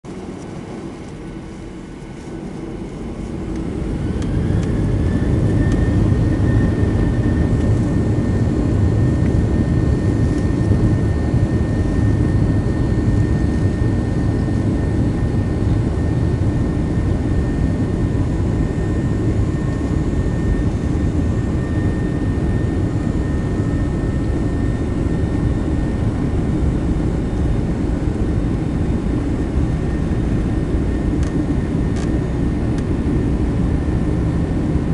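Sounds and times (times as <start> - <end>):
jet engine whine: 0.1 - 34.9
jet engines rumbling: 0.1 - 34.9.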